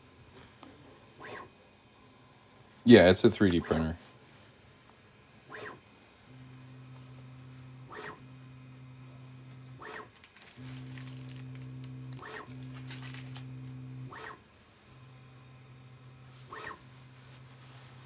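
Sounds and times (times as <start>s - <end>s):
stepper motors humming: 5.4s - 18.0s
short motor whir: 5.5s - 17.5s.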